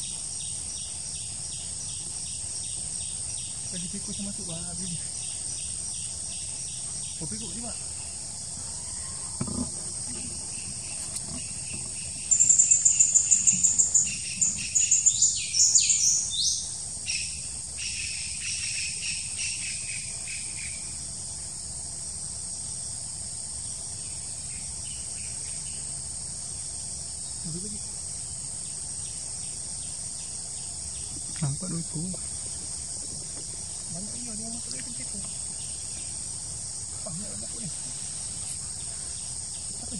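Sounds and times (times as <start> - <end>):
insects droning: 0.0 - 39.9
birds calling shrill notes: 10.2 - 20.8.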